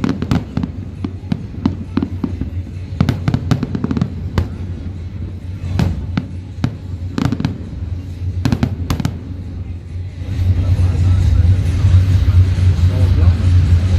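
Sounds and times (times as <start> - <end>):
fireworks bangs and cracks: 0.0 - 9.7
low rumble: 0.0 - 13.9.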